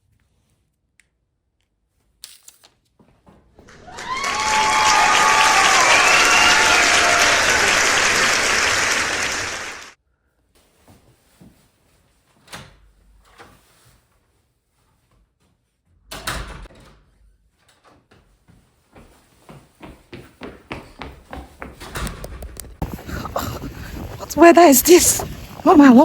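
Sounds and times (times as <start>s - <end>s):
people applauding: 3.7s - 9.9s.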